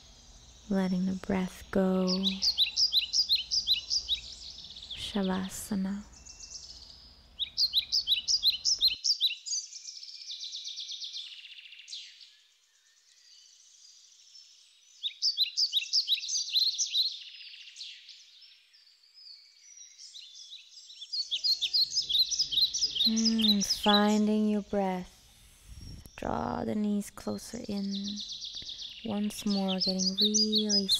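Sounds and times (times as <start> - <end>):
bird chirping high notes: 21.1 - 25.0.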